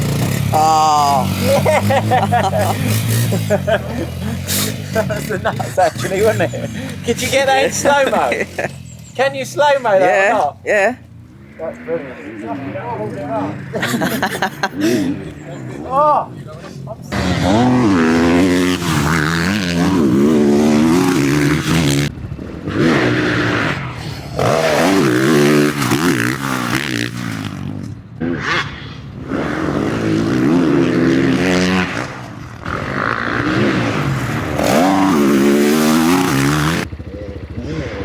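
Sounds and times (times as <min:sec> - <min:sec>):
motocross bike engine revving: 0:00.0 - 0:38.0.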